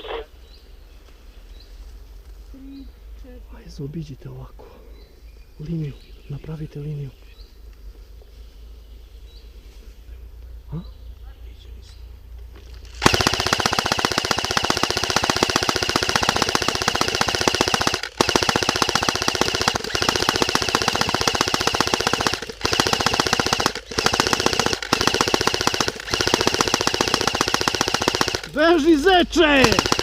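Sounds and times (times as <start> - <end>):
airsoft rifle rapid fire: 13.0 - 30.0.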